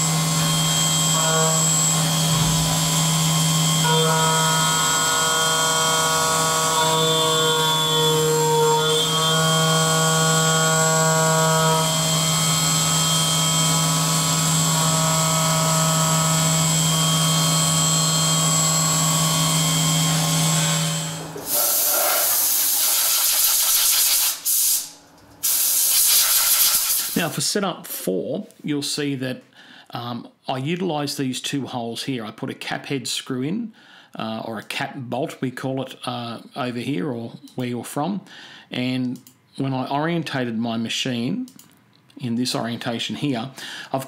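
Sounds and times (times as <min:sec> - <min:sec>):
milling machine whine: 0:00.0 - 0:22.4
coolant spraying hiss: 0:21.4 - 0:27.3.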